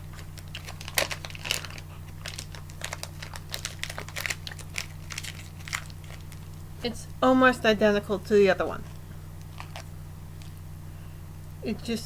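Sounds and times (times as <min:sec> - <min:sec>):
wrapper crinkling: 0:00.0 - 0:06.6, 0:09.4 - 0:10.6
steady low hum: 0:00.0 - 0:12.0.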